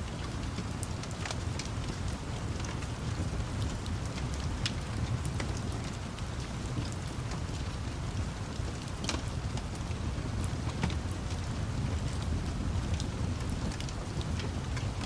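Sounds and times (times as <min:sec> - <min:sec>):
wood fire crackling: 0:00.1 - 0:15.0.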